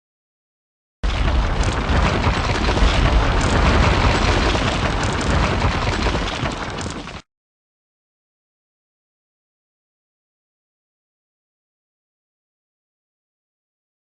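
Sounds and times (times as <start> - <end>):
wall breaking apart with rumbling crash: 1.0 - 7.2.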